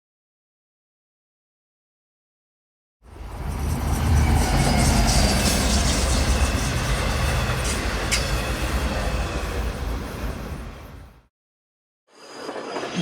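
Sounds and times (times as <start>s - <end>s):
subway train rumbling on tracks: 3.0s - 11.3s.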